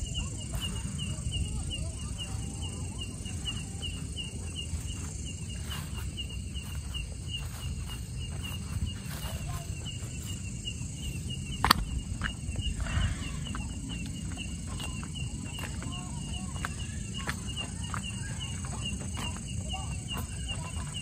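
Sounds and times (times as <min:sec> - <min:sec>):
cricket chirping: 0:00.0 - 0:21.0
footsteps on dirt path: 0:00.0 - 0:21.0
low rumble: 0:10.1 - 0:16.6.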